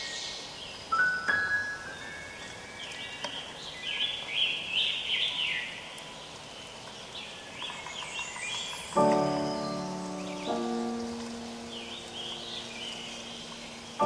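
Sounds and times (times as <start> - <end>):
songbird whistled chirps: 0.0 - 6.2
outdoor background hiss: 0.0 - 14.0.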